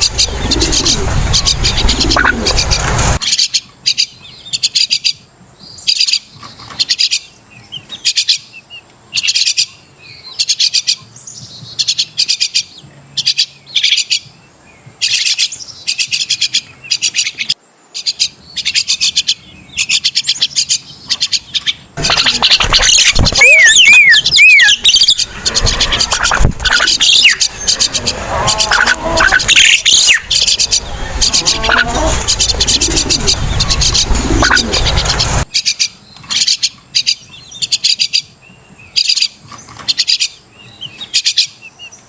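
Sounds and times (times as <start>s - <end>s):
bird harsh chattering calls: 0.0s - 5.2s, 15.0s - 38.3s.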